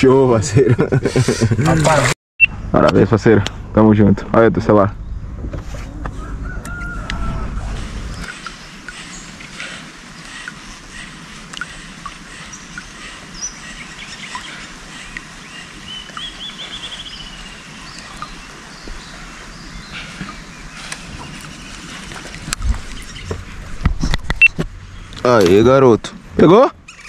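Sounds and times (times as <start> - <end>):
wild birds calling and chirping: 4.6 - 23.8, 24.6 - 25.9, 26.5 - 27.0.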